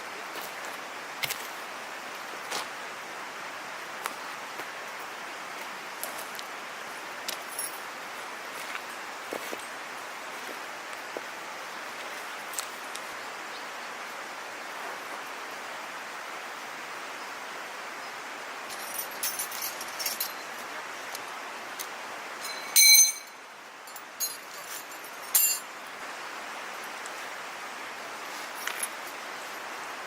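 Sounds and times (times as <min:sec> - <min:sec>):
steady rushing hiss: 0:00.0 - 0:30.0
metal camp gear clinking: 0:07.4 - 0:07.8, 0:18.7 - 0:21.3, 0:22.4 - 0:25.7
metal clanks: 0:18.7 - 0:20.6, 0:22.4 - 0:25.7.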